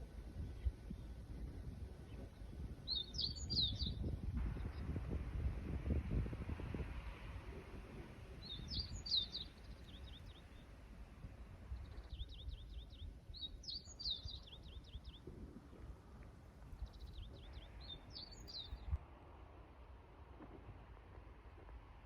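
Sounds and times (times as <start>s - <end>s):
low outdoor rumble: 0.0s - 22.0s
songbird singing: 0.4s - 5.0s, 8.0s - 19.0s.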